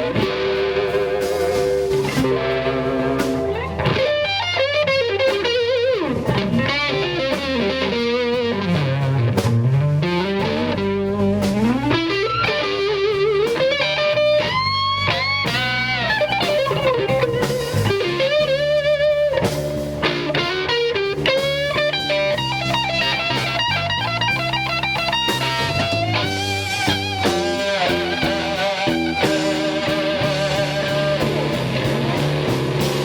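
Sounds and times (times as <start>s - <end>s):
bass line: 0.0s - 33.0s
drums: 0.0s - 33.0s
electric guitar solo: 0.0s - 33.0s.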